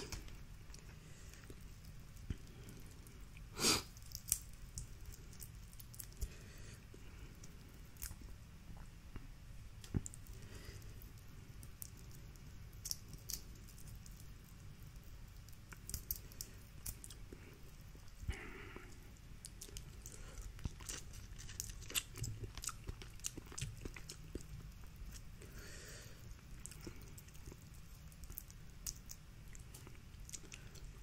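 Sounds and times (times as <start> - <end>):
person chewing: 0.0 - 9.2, 9.8 - 31.0
food handling clicks and crackles: 15.3 - 25.7.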